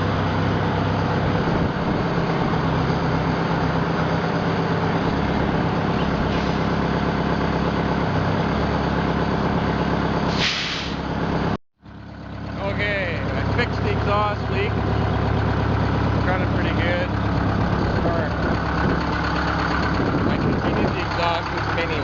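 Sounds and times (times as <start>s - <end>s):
diesel engine running steadily: 0.0s - 22.0s.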